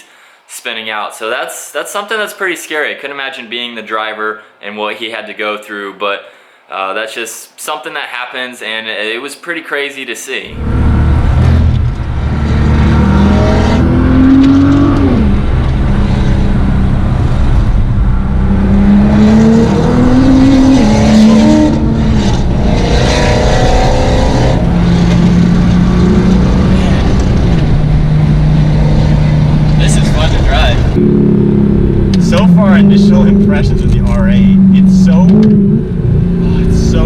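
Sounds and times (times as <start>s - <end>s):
car engine accelerating: 10.5s - 37.0s.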